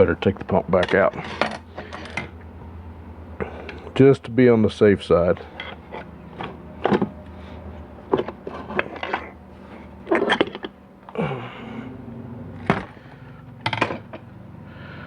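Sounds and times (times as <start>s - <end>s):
steady low hum: 0.0s - 15.0s
metal parts clinking and knocking: 0.8s - 2.3s, 5.4s - 7.1s, 8.0s - 11.2s, 12.6s - 13.0s, 13.6s - 14.3s
metal scraping: 5.4s - 10.8s.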